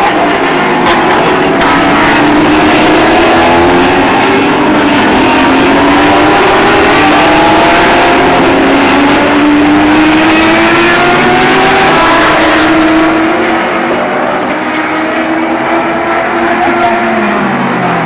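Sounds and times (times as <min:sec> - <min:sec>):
race car engines accelerating: 0:00.0 - 0:18.0.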